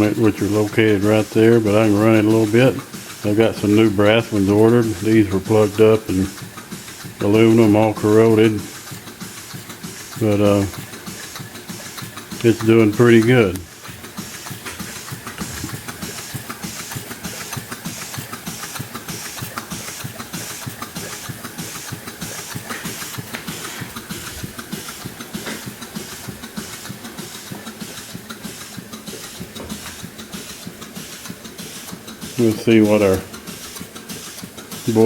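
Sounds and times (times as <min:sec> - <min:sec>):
steam engine running: 0:00.0 - 0:35.0.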